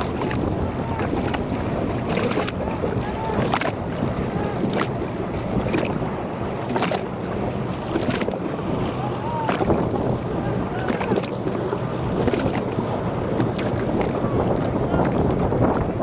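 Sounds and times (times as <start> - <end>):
sharp hull slaps: 0.0 - 15.9
motorboat engine running: 0.0 - 16.0
water splashing against hull: 0.0 - 16.0
wind buffeting microphone: 0.0 - 16.0.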